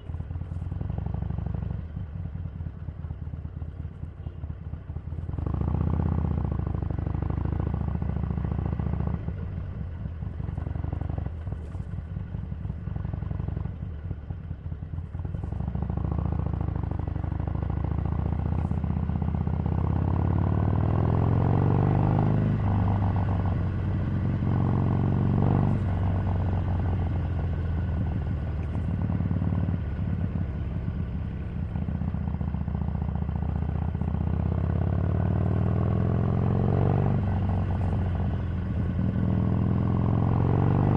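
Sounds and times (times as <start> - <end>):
motorcycle engine revving: 15.6 - 40.9.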